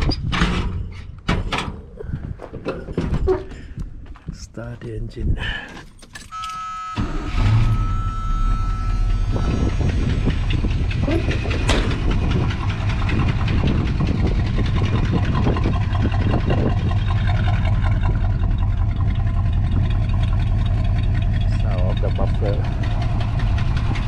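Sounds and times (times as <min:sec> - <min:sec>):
engine catching and idling: 0:05.8 - 0:24.0
fast exhaust ticking: 0:08.6 - 0:24.0.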